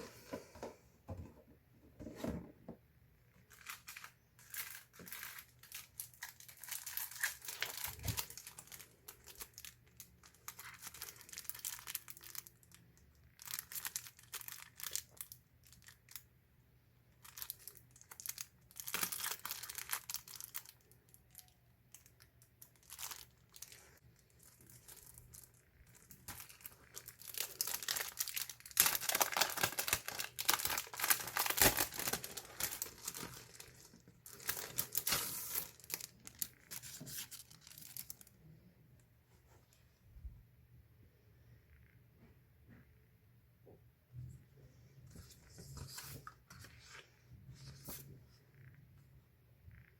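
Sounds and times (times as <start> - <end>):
packaging torn and crinkled: 3.5 - 12.8, 13.4 - 16.2, 17.2 - 38.3.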